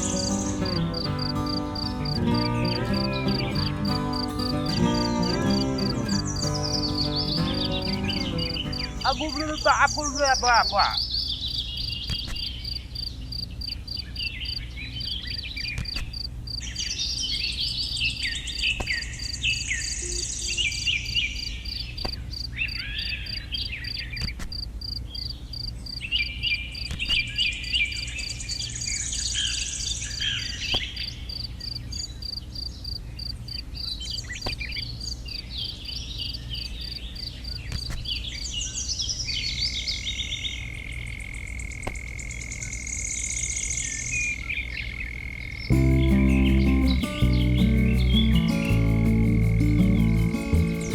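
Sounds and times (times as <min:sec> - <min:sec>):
pulsing insect trill: 0:00.0 - 0:10.7, 0:45.2 - 0:50.9
birds chirping: 0:00.0 - 0:24.4, 0:25.1 - 0:50.9.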